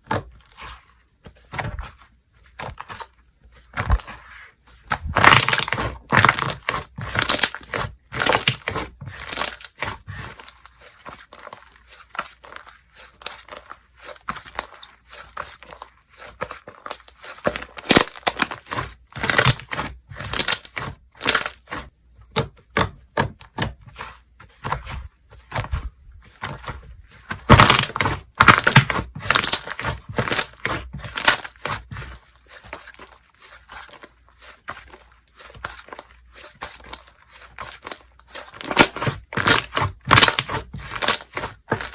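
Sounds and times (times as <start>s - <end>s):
slime squished by hand: 1.5s - 41.9s.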